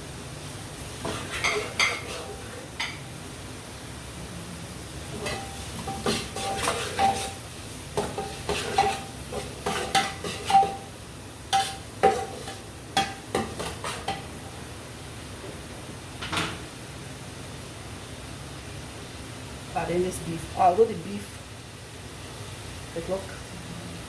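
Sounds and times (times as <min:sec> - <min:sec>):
light sizzle: 0:00.0 - 0:24.0
spoon scraping metal pot: 0:01.0 - 0:02.5, 0:05.2 - 0:07.4.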